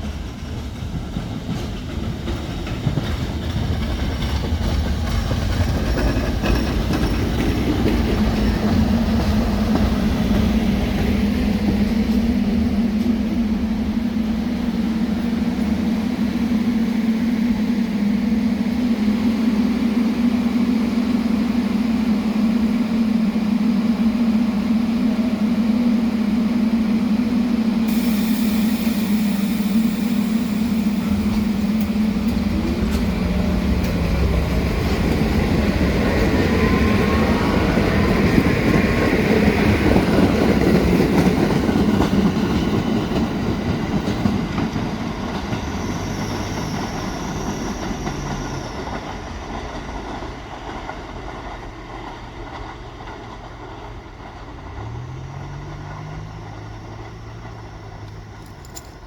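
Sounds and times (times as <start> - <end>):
train rumbling on rails: 0.0 - 59.0
rising motor whine: 12.0 - 39.6.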